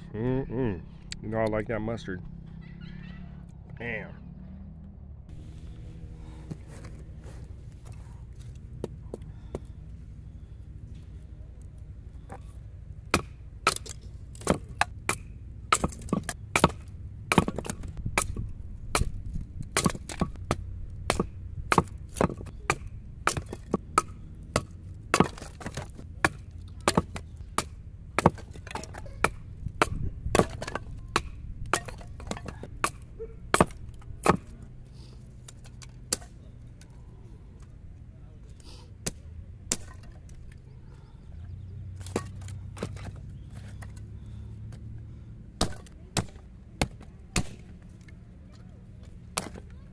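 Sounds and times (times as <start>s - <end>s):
knife chopping firewood: 6.2s - 10.4s, 12.2s - 37.0s, 39.0s - 40.5s, 41.9s - 45.0s, 45.6s - 48.2s, 49.1s - 49.9s.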